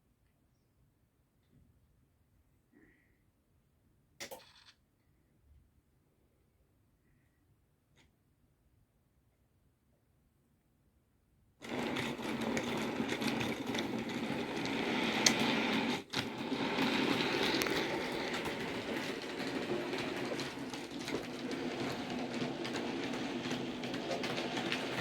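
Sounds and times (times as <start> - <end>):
model train wheels clicking: 11.6 - 25.0.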